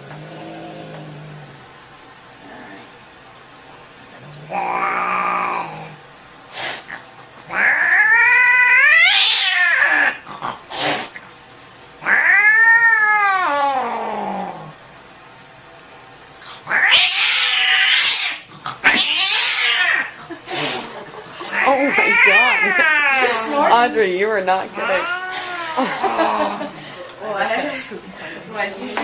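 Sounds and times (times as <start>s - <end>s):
cat yowling: 7.5s - 10.2s, 12.0s - 14.6s, 16.7s - 20.2s, 21.5s - 23.5s, 24.8s - 26.5s.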